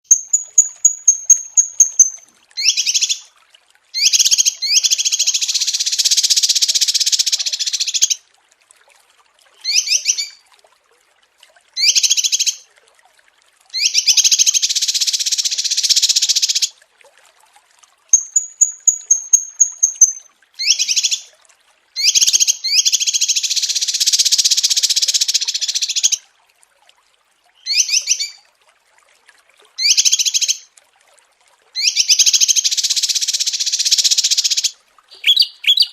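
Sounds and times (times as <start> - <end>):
small songbirds singing: 0.1 - 3.2, 18.2 - 21.3, 31.8 - 35.9.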